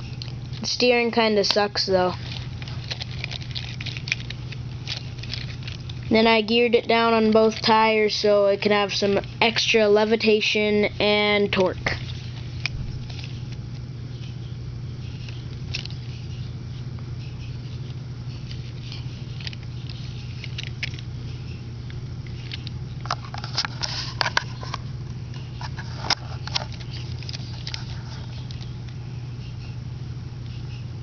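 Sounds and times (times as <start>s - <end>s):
low hum: 0.0s - 31.0s
plastic parts clicking and rattling: 2.2s - 6.0s, 15.2s - 16.1s, 18.5s - 21.0s, 22.3s - 24.8s, 25.6s - 28.7s.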